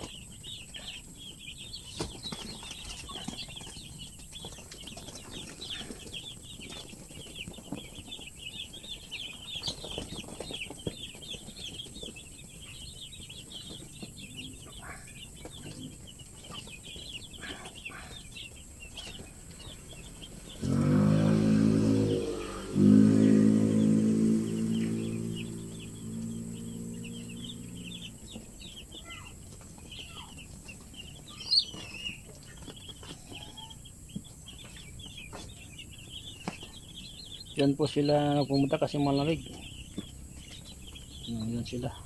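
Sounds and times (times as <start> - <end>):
chicks peeping: 0.0 - 42.0
loud low-pitched tone: 20.5 - 28.2.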